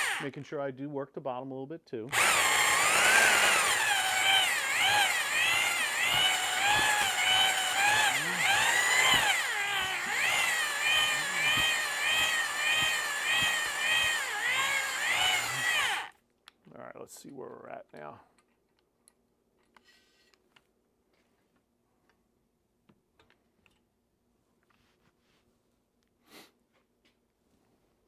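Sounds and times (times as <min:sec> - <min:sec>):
electric drill whining under load: 0:00.0 - 0:00.3, 0:02.1 - 0:16.1.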